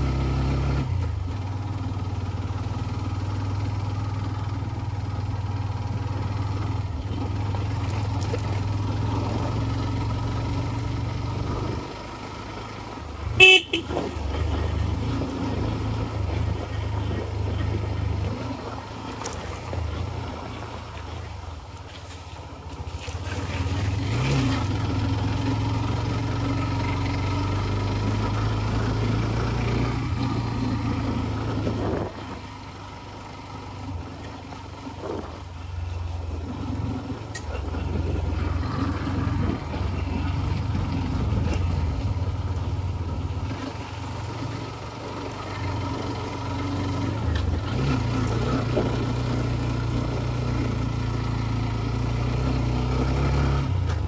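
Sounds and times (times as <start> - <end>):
scooter engine running: 0.0 - 54.0
horn toot: 13.4 - 14.2.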